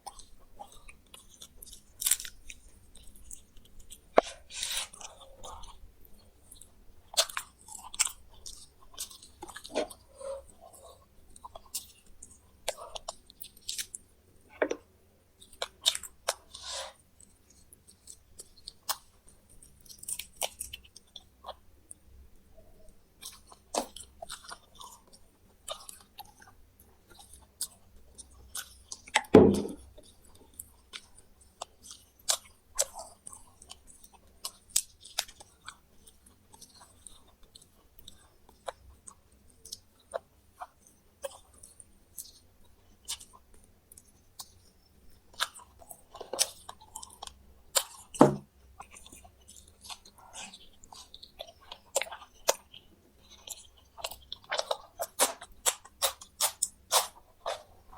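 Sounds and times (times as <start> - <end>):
chewing crunchy food: 0.0 - 57.9
small bones crunching: 1.2 - 2.6, 28.5 - 30.4.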